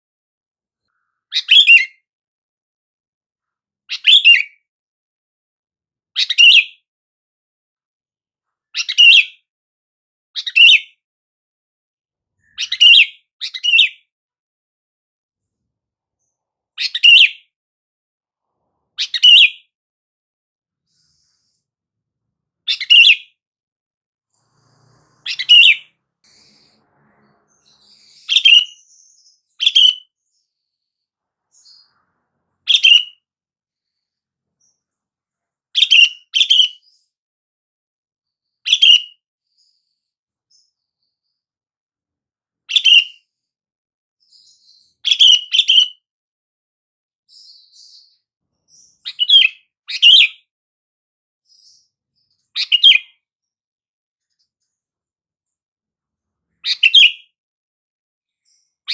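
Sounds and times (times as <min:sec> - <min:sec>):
bird chirping calls: 0:00.9 - 0:02.0, 0:03.9 - 0:04.6, 0:12.4 - 0:14.0, 0:16.2 - 0:17.5, 0:18.6 - 0:19.7, 0:22.7 - 0:23.4, 0:24.3 - 0:33.2, 0:42.7 - 0:43.3, 0:44.3 - 0:46.0, 0:47.3 - 0:50.4, 0:51.5 - 0:53.2, 0:56.6 - 0:57.3.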